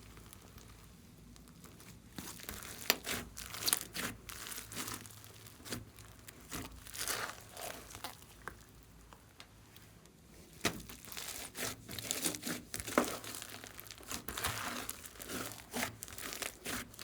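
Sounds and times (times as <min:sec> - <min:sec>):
slime squeezed by hand: 0:02.2 - 0:08.7.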